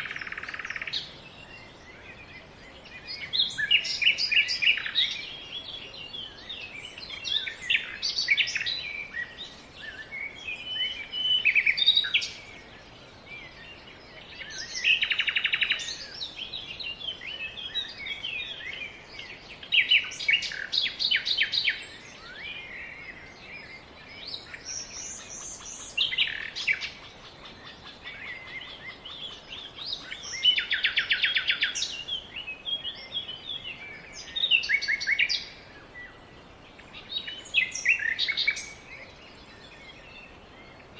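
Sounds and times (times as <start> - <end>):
bird trill: 0.0 - 1.2
songbirds chirping: 0.0 - 40.9.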